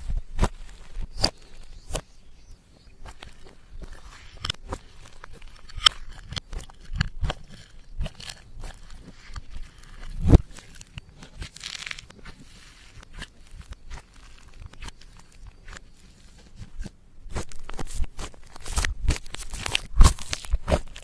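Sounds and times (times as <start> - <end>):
slime squishing with sticky clicks: 4.4 - 15.9.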